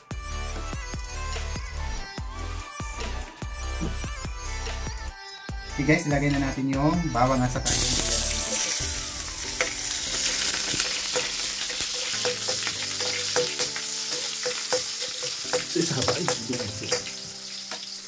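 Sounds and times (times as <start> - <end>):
garlic sizzling in oil: 7.6 - 18.0.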